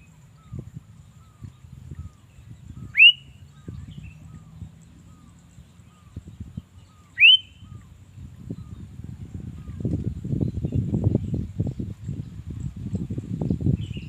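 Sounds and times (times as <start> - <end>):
soft bird chirps: 0.0 - 14.0
bird whistling upward notes: 2.7 - 4.4, 6.8 - 7.9.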